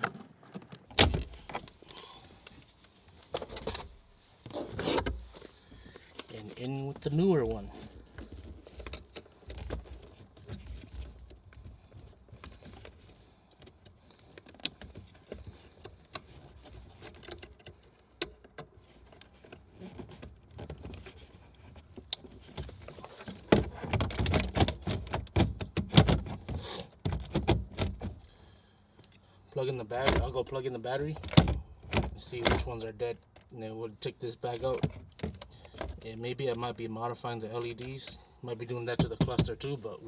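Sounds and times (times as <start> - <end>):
plastic parts clicking and knocking: 39.0 - 39.6.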